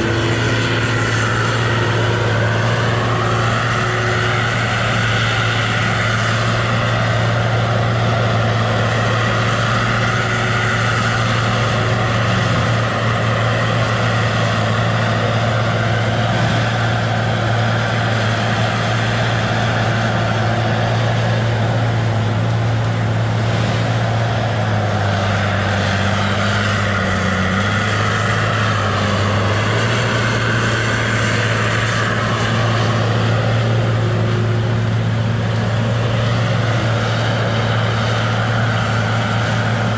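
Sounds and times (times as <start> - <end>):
diesel engine running under load: 0.0 - 39.9
hydraulic whine: 0.0 - 39.9.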